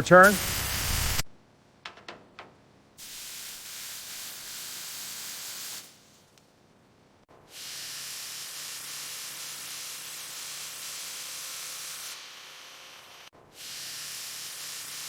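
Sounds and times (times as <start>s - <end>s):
hissing spray: 0.0s - 1.3s, 3.0s - 6.2s, 7.5s - 15.0s.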